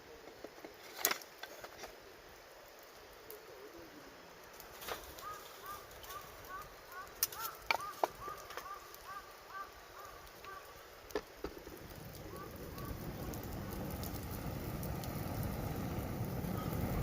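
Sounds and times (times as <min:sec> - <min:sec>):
wood fire crackling: 0:00.0 - 0:17.0
bird chirping call: 0:05.2 - 0:10.7
wind on microphone: 0:12.0 - 0:17.0.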